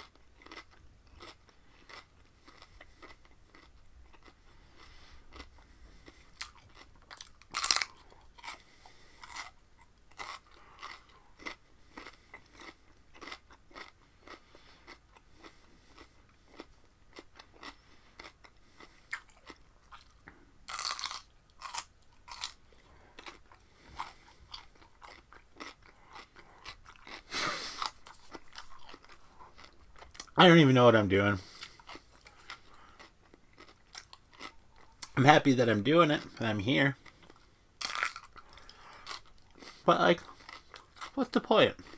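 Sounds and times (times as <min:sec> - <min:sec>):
crunchy chewing of cucumber: 0:00.0 - 0:30.6, 0:31.4 - 0:35.4, 0:36.2 - 0:41.9.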